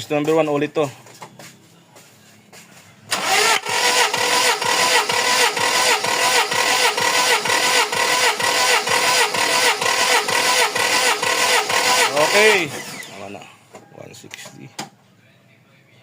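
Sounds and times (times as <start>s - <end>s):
engine compression chugging: 3.1s - 13.2s
starter motor whining: 3.1s - 13.4s.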